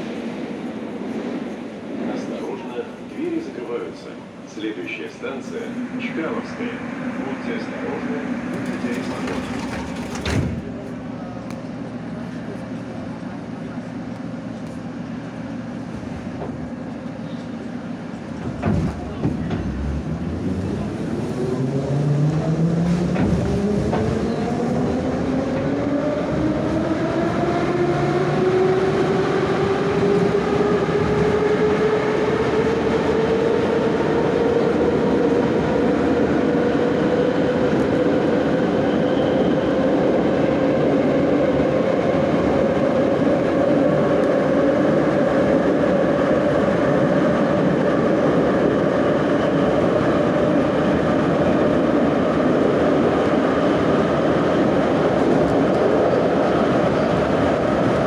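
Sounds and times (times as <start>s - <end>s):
wheels clattering on rails: 8.4s - 10.8s.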